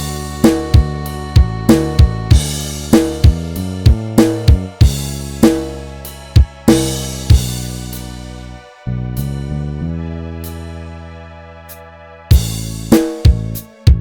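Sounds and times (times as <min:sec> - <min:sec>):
drum kit playing: 0:00.0 - 0:08.3, 0:12.3 - 0:14.0
bass notes: 0:00.0 - 0:14.0
keyboard notes: 0:00.0 - 0:14.0.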